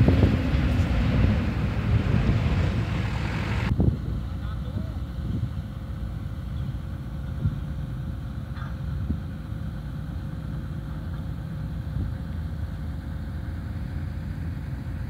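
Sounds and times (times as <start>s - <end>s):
diesel engine rumbling: 0.0s - 15.0s.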